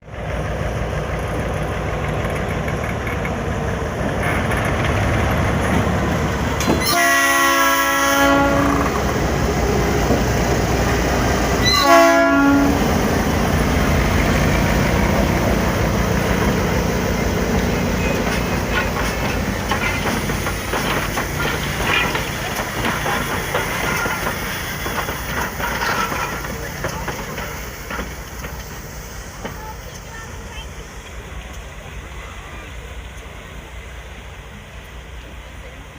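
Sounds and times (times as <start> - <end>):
locomotive engine rumble: 0.0 - 35.9
train horn blasts: 6.7 - 9.0, 11.6 - 12.9.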